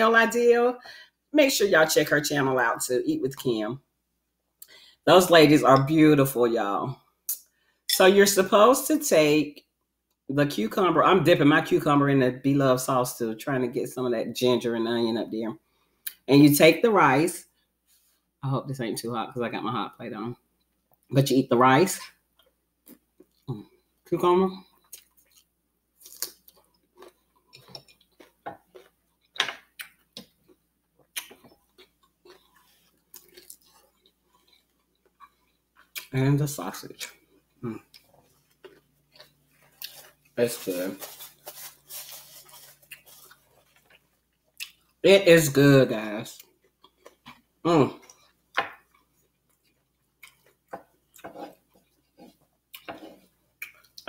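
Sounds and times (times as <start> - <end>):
crunchy chewing: 24.6 - 36.1, 37.0 - 45.0, 46.4 - 54.0.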